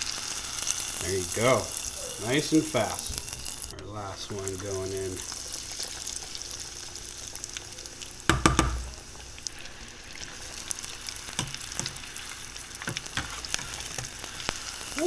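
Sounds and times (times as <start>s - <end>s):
food deep-frying in hot oil: 0.0s - 15.0s.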